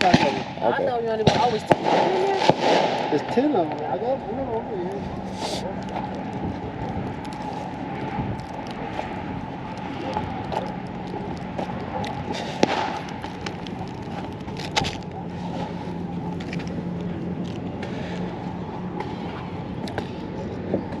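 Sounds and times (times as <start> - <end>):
firework bangs: 0.0 - 3.8, 12.1 - 14.3
distant fireworks popping: 0.0 - 21.0
low steady hum: 0.0 - 21.0.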